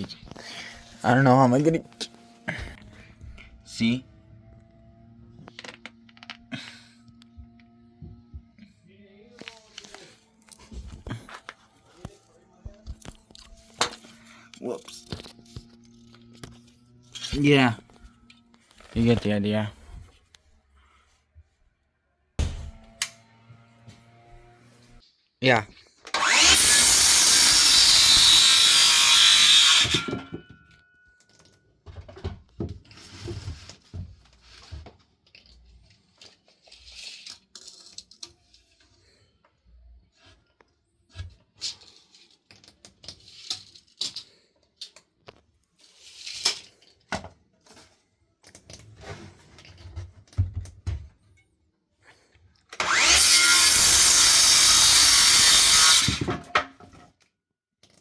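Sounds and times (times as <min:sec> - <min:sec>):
power tool running: 0:26.1 - 0:30.3, 0:52.8 - 0:56.4
handling clicks and scrapes: 0:32.8 - 0:50.4.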